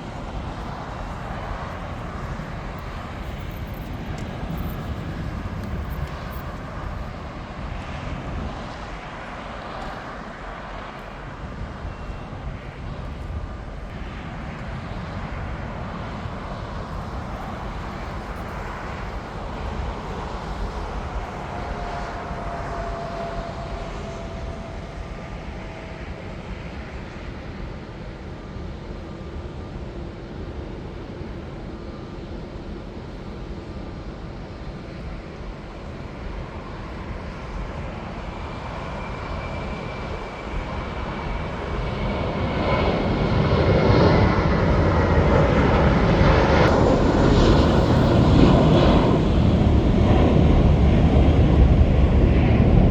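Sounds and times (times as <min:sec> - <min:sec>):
jet engines running: 0:00.0 - 0:52.9
faint whining tone: 0:16.9 - 0:27.2.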